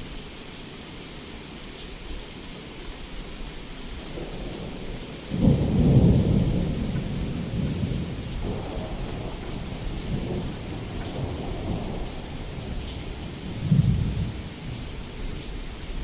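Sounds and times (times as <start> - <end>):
heavy rain falling: 0.0 - 16.0
thunderclap rolling: 4.2 - 14.4.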